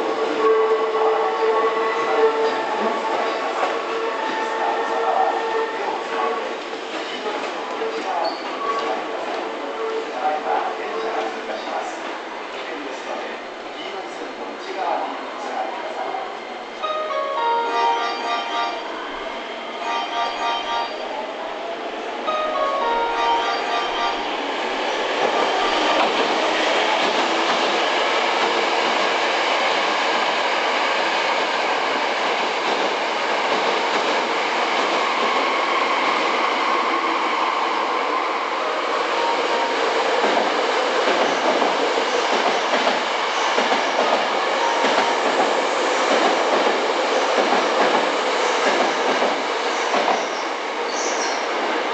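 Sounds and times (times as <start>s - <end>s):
electric train running on rails: 0.0s - 51.9s.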